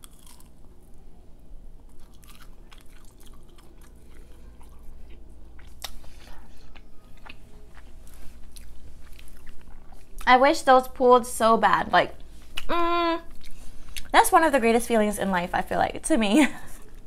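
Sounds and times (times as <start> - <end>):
crunchy food chewing: 0.0 - 1.0, 1.8 - 10.3.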